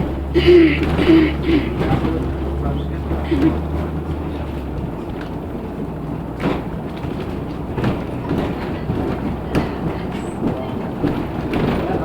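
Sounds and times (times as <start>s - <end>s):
bus cabin rumble: 0.0s - 12.0s
sharp knocks or rattles: 6.3s - 12.0s.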